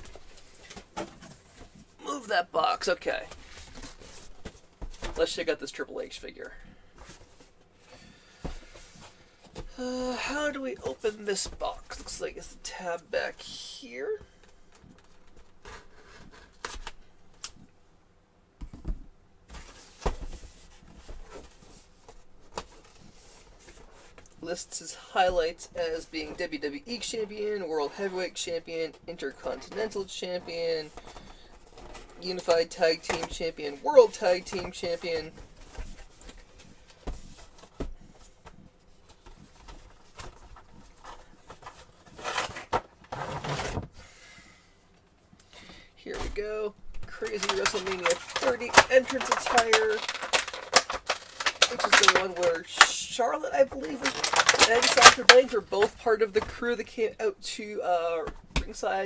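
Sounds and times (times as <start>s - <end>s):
cardboard box clicks and rustles: 47.1s - 52.9s, 53.6s - 56.6s.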